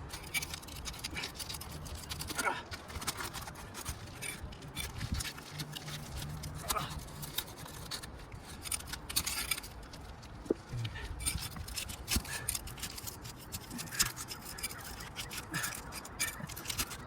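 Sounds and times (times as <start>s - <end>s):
tool scraping under shingles: 0.0s - 17.0s.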